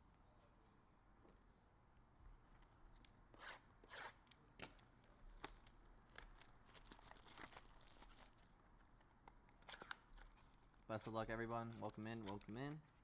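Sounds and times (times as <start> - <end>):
packaging tearing and crinkling: 5.4 - 8.6.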